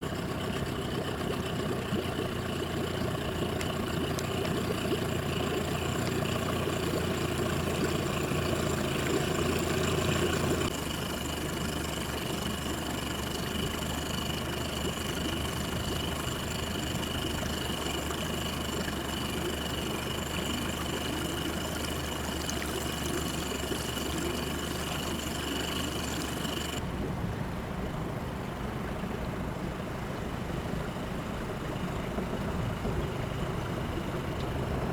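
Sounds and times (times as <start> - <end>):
ship diesel engine drone: 0.0 - 34.9.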